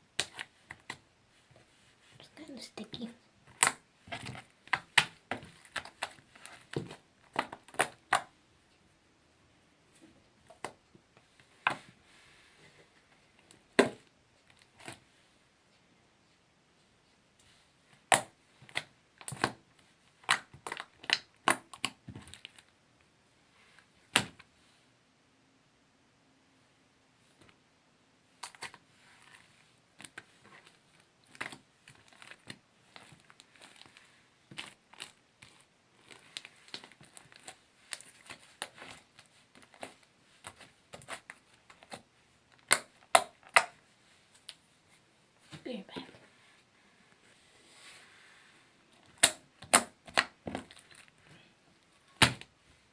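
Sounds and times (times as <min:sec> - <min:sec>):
slime clicking and popping: 0:42.6 - 0:43.8
sharp slime pops: 0:49.1 - 0:50.3.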